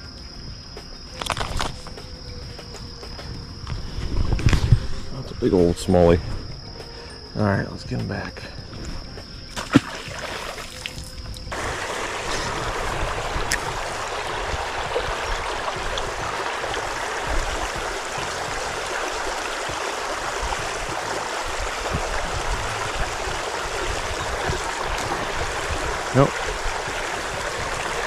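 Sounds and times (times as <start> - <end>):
creek water running: 9.6 - 28.0.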